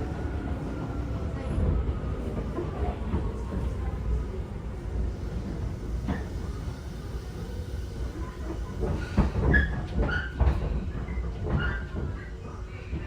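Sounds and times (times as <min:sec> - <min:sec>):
train running low rumble: 0:00.0 - 0:13.0
train wheel clack: 0:08.0 - 0:12.2.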